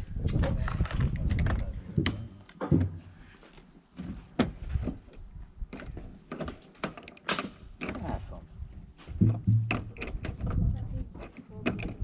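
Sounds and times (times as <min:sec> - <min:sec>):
metal tools clicking and knocking: 0:01.2 - 0:02.2, 0:05.7 - 0:08.0, 0:09.5 - 0:10.6, 0:11.2 - 0:12.0.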